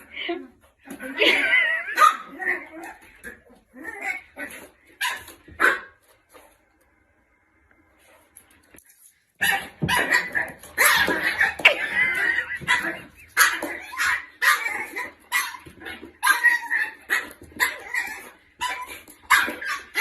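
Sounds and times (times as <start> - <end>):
dog barking: 5.0 - 6.0.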